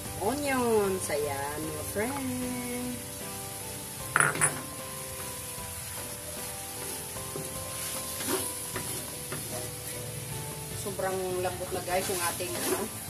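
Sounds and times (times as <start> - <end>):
meat and onions sizzling: 0.0 - 13.0
wooden spatula scraping pan: 6.8 - 10.0, 11.8 - 13.0.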